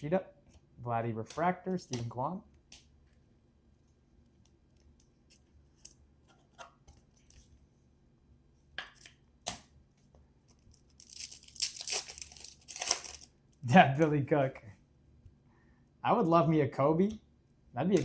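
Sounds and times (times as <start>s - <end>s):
card pack wrapper tearing and crinkling: 10.7s - 13.3s
wrapper crackles: 10.7s - 13.3s.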